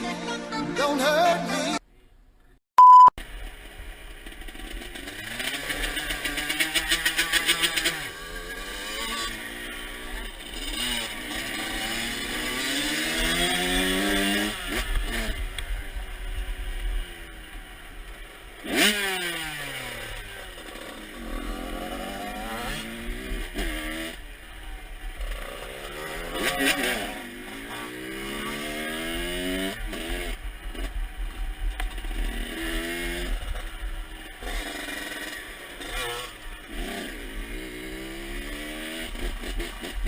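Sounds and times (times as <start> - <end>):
dirt bike engine revving: 3.4 - 40.0.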